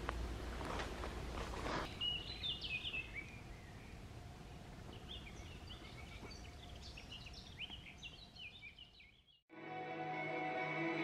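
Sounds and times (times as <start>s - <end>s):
small birds chirping: 1.8s - 9.4s.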